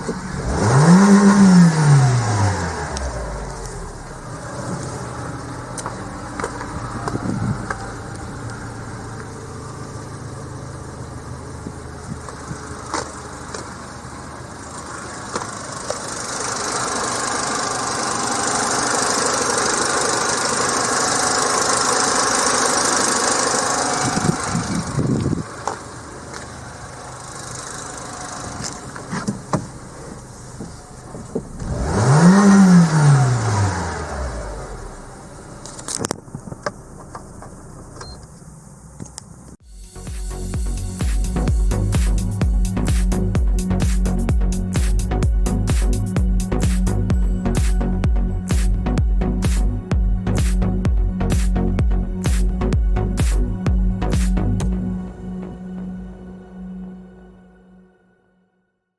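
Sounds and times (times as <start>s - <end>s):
engine throttle blips: 0.0s - 57.3s
car engine idling: 0.0s - 57.4s
hiss: 14.9s - 45.1s.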